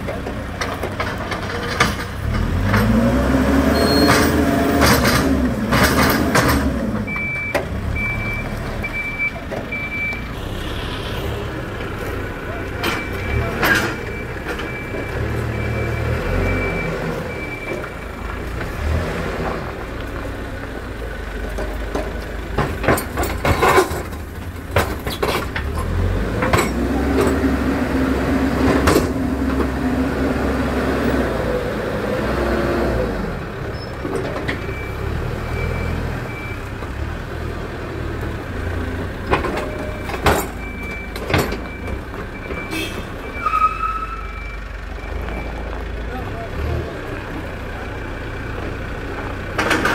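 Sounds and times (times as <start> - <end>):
diesel engines working: 0.0 - 49.9
sharp metal knocks and clanks: 0.1 - 3.0, 3.9 - 7.6, 21.6 - 27.5, 28.6 - 29.8, 39.2 - 42.7.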